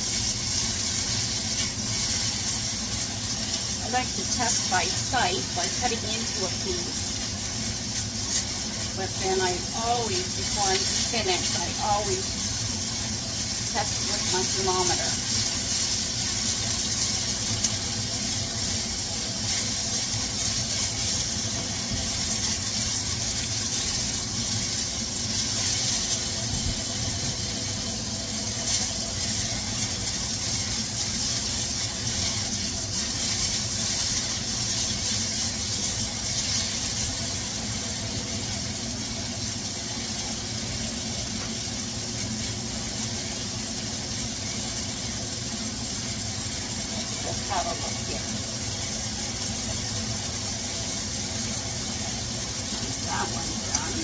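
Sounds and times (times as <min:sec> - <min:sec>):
chicken sizzling in a wok: 0:00.0 - 0:54.0
spatula stirring: 0:28.3 - 0:37.4.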